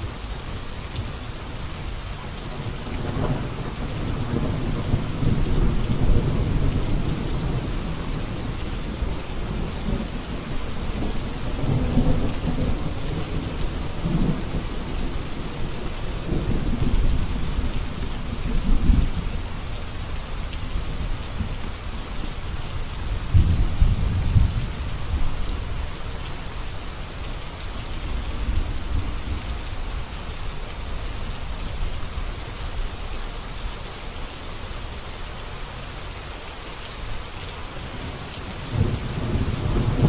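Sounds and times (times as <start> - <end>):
steady rain: 0.0 - 40.0
thunder rumbling: 2.2 - 19.2, 37.9 - 40.0.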